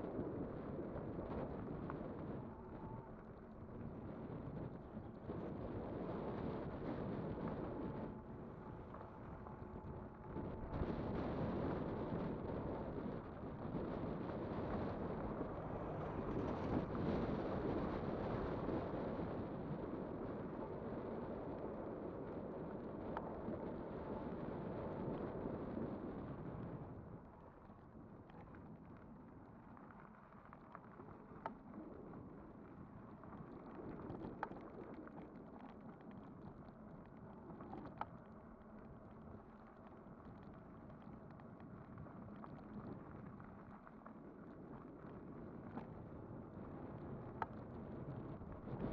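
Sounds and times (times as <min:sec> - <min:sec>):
wind rushing over microphone: 0:03.7 - 0:28.8, 0:44.6 - 0:48.9.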